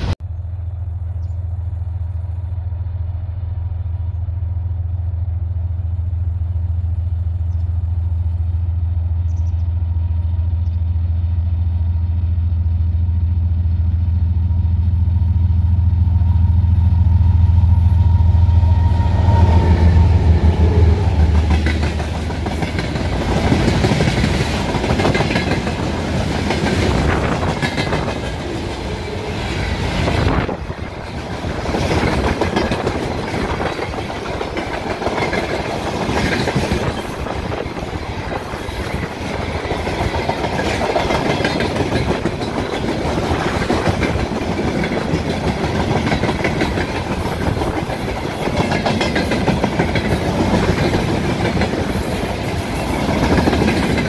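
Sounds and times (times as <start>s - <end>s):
train wheels clattering over joints: 30.8s - 54.0s.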